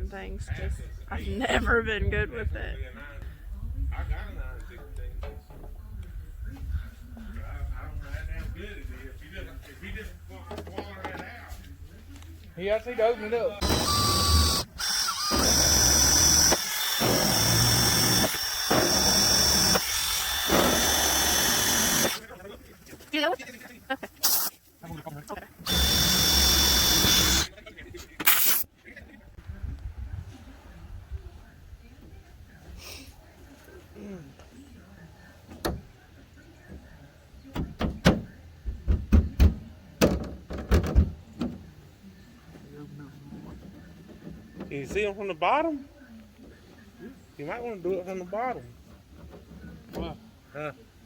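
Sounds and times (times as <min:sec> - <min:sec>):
electric drill drilling metal: 0:13.6 - 0:22.2, 0:25.6 - 0:27.5
knocks and thumps: 0:37.6 - 0:41.6.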